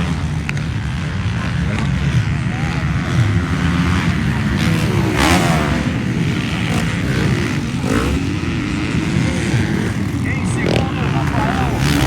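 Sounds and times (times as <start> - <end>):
motocross motorcycle engines revving: 0.0 - 12.0
motorcycle passing by: 0.0 - 12.0.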